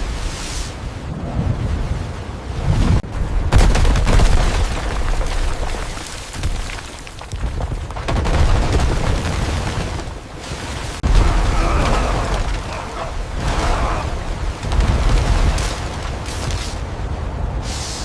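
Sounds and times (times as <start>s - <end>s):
deep rumble with booms: 11.0s - 18.0s.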